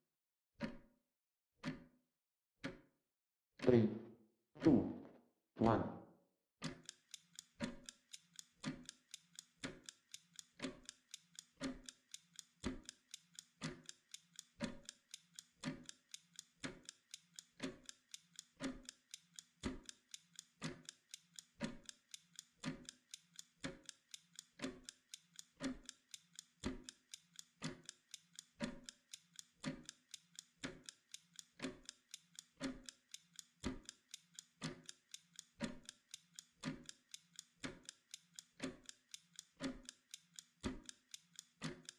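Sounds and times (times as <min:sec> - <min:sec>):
clockwork timer ticking: 0:06.6 - 0:41.9.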